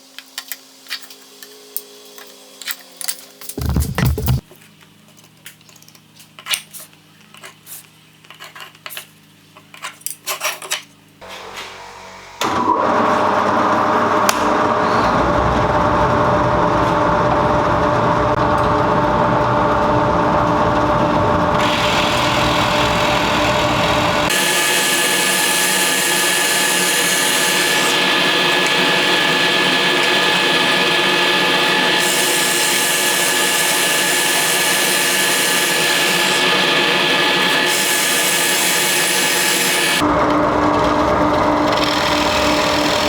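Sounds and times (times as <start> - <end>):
power tool running on wood: 3.6 - 4.4, 12.4 - 43.0.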